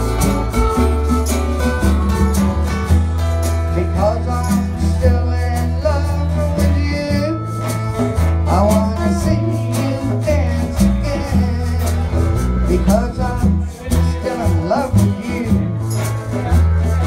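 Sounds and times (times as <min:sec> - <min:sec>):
country music with guitar: 0:00.0 - 0:17.0
steady bass line: 0:00.0 - 0:17.0
person singing: 0:03.7 - 0:17.0.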